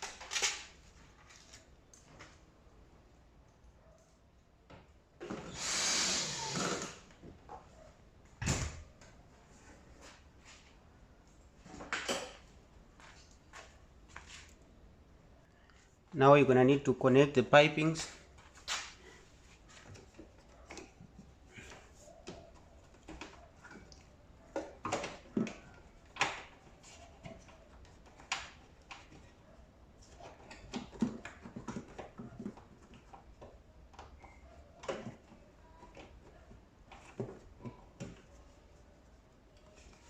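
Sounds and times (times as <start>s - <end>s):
plastic hoses clicking and rustling: 30.0s - 38.4s.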